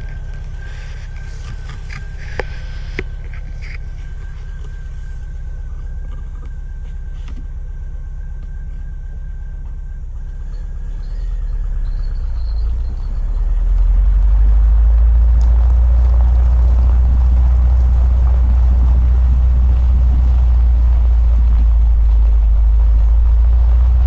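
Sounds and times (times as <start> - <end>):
van engine low rumble: 0.0 - 24.0.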